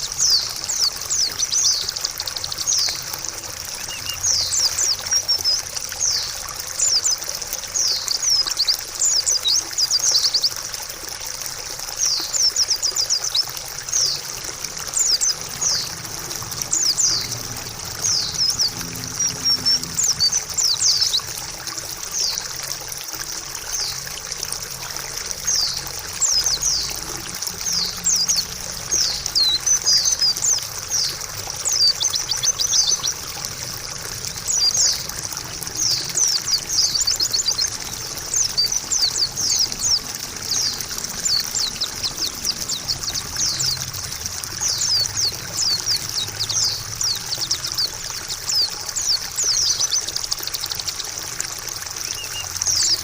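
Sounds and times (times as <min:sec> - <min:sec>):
bird twittering high chirps: 0:00.0 - 0:07.2, 0:14.9 - 0:21.4, 0:25.4 - 0:33.5, 0:34.2 - 0:50.1, 0:52.0 - 0:53.0
trickling water: 0:00.0 - 0:53.0.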